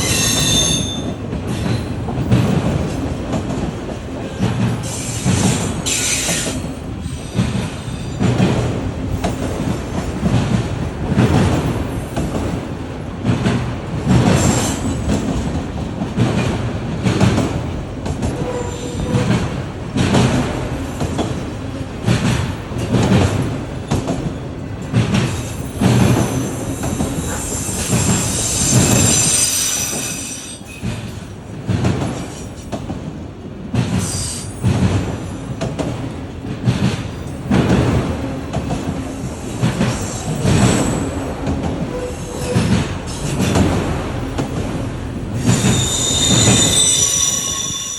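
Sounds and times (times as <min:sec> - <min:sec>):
high-pitched wheel squeal: 0:00.0 - 0:01.0, 0:27.4 - 0:30.7, 0:45.5 - 0:47.9
train wheels clicking over rail joints: 0:00.0 - 0:47.9.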